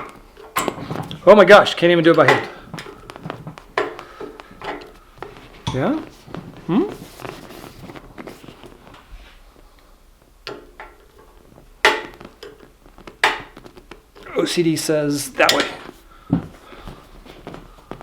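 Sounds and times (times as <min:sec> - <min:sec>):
rustling of upholstery: 0:00.1 - 0:10.3, 0:11.1 - 0:18.0.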